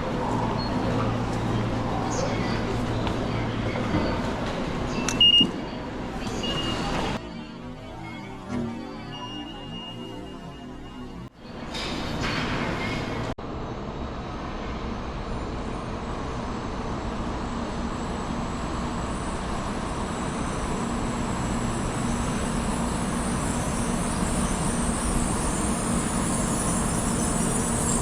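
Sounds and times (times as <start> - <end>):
train running rumble and hiss: 11.7 - 28.0.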